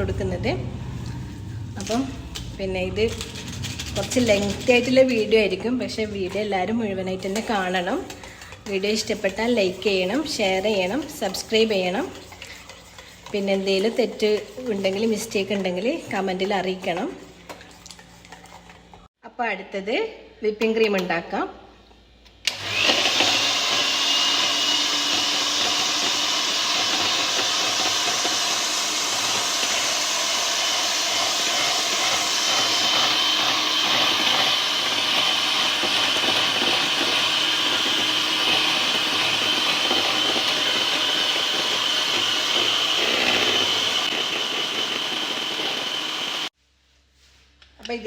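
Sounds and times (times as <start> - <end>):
electric mixer whirring: 22.5 - 46.5.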